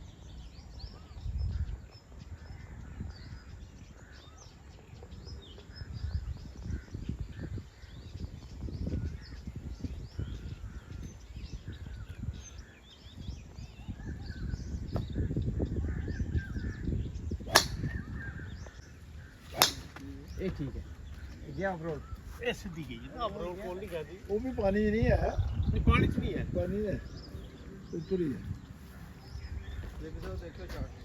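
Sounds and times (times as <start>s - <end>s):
birds chirping and calling: 0.0s - 31.0s
golf club striking ball: 17.5s - 18.4s, 19.5s - 20.4s.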